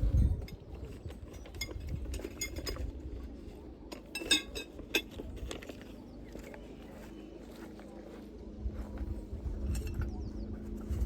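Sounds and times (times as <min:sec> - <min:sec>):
metal camping gear clinking: 0:00.0 - 0:06.5, 0:09.6 - 0:10.2.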